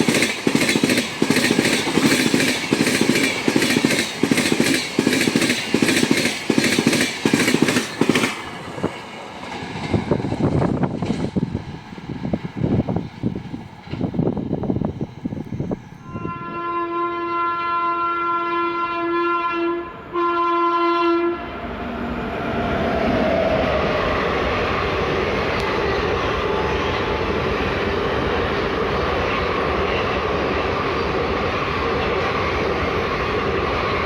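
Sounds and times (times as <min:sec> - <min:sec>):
train wheel clatter: 0:00.0 - 0:15.8
train rumbling past: 0:00.0 - 0:18.5, 0:19.7 - 0:34.0
gusty wind noise: 0:07.8 - 0:16.8
train horn blasts: 0:16.0 - 0:21.7.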